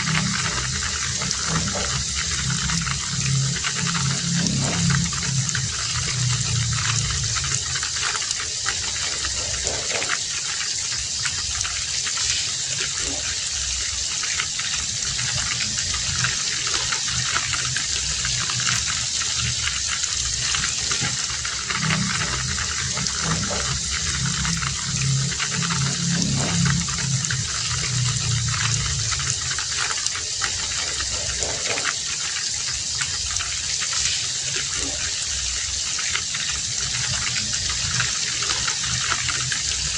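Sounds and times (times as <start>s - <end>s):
deep rumble: 0.0s - 10.2s, 14.8s - 31.7s
heavy rain falling: 0.0s - 39.9s.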